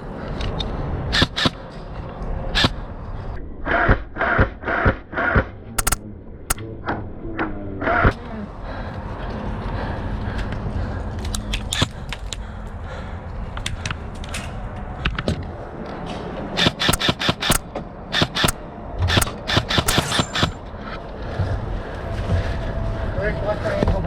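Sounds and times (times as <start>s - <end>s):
airsoft guns firing: 5.8s - 6.0s, 19.9s - 20.6s.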